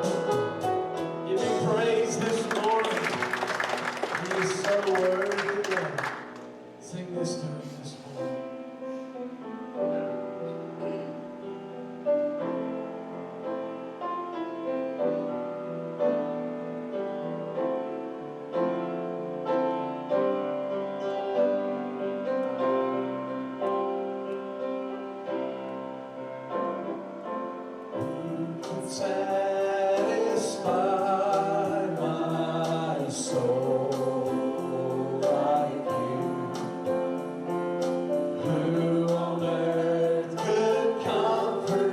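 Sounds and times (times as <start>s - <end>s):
drums and cymbals: 0.0s - 1.8s
piano and keyboard chords: 0.0s - 41.9s
voices singing together: 28.0s - 37.5s, 38.4s - 41.9s.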